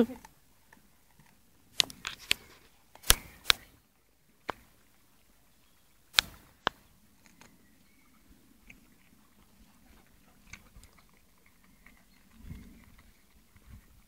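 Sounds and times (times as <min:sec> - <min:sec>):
dog crunching a carrot: 0:08.2 - 0:14.0.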